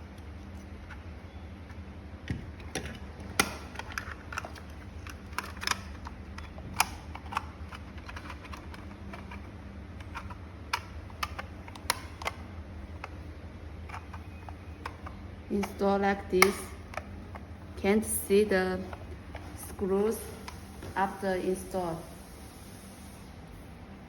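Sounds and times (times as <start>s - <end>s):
steady low hum: 0.0s - 24.0s
hard plastic parts clicking: 2.2s - 17.6s.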